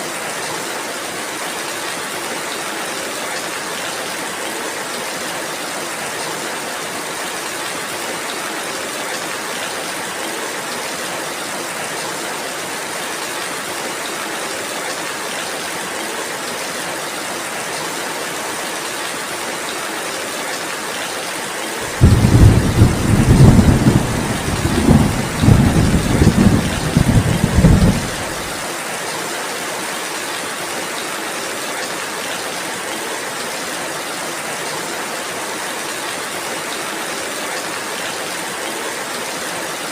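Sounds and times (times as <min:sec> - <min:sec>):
steady rain: 0:00.0 - 0:39.9
low rumble of thunder: 0:21.9 - 0:28.5.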